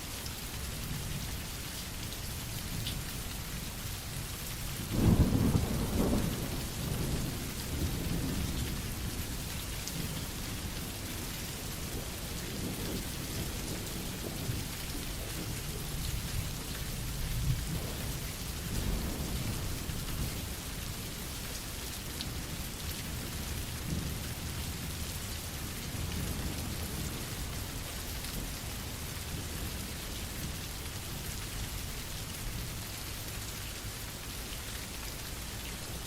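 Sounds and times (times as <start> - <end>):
steady rain: 0.0 - 36.0
thunder clap rumbling: 5.0 - 8.7.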